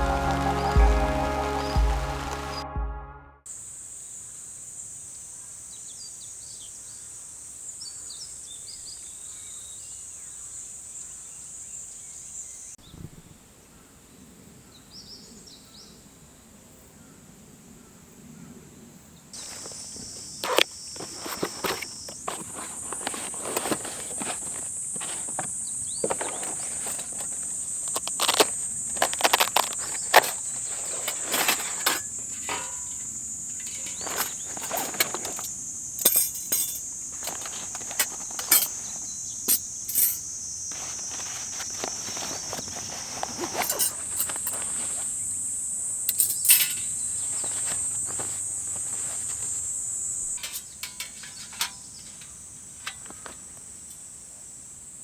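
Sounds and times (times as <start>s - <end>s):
insect chorus: 3.5s - 55.0s
clicks knocks and rustles: 19.4s - 45.1s.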